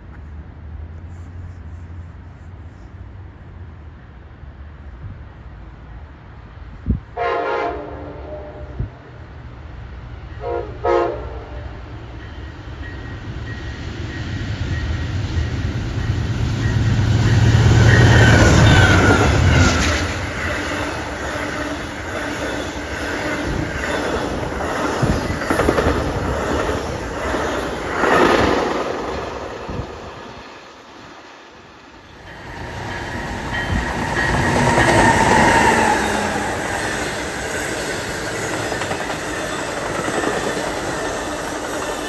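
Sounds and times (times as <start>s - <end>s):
train rumble passing: 0.0s - 42.0s
train horn: 7.2s - 9.0s, 10.3s - 12.0s, 17.3s - 20.3s.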